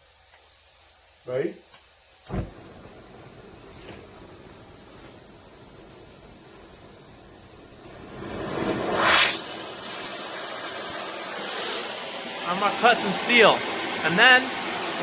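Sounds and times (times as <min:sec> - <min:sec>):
gas flame hissing: 0:00.0 - 0:15.0
torch lighting pop: 0:02.2 - 0:12.1.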